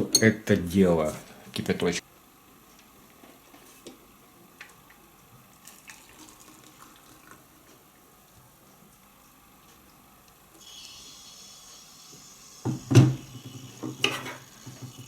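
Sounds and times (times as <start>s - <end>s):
water pouring into glass: 5.6s - 7.4s.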